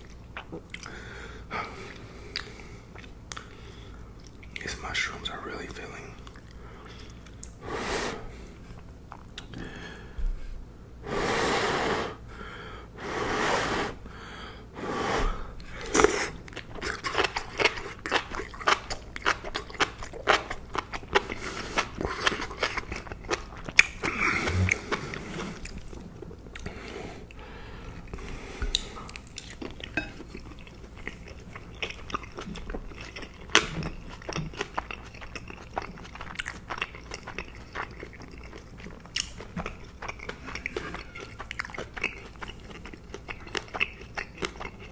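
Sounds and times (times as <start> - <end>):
wet chewing with crackles: 0.0 - 1.0, 1.8 - 5.0, 5.6 - 7.6, 15.6 - 44.9
breathy mouth noises: 23.9 - 26.0.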